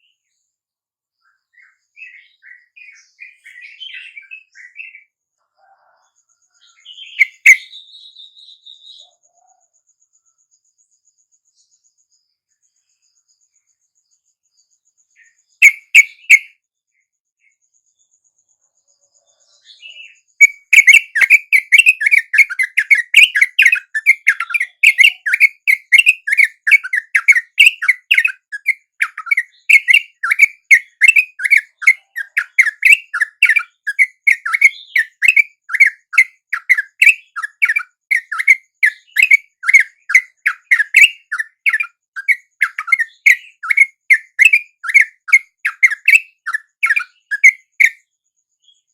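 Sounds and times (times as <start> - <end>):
bulbul chirps: 6.7 - 9.0, 15.6 - 16.6, 19.8 - 48.0.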